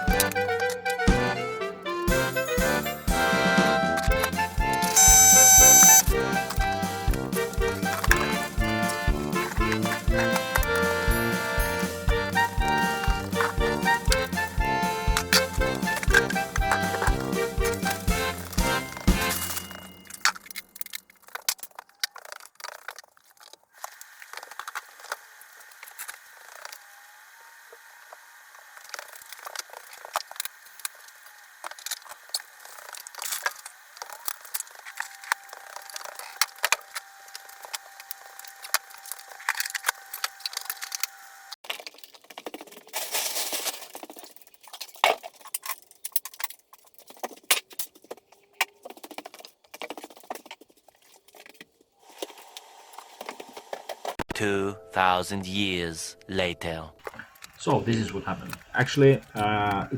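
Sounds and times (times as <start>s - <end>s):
rapid clicking and clattering: 6.0s - 23.6s, 41.6s - 51.8s.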